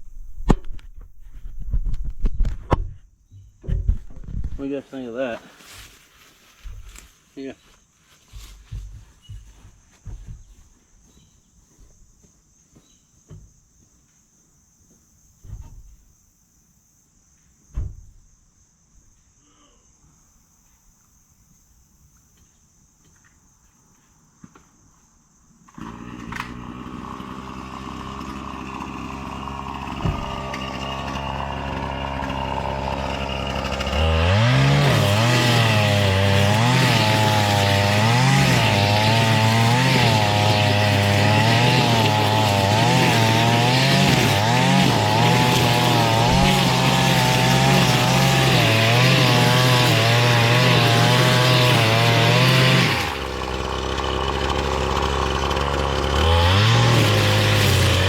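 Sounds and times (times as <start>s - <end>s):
string trimmer engine running: 25.7s - 58.0s.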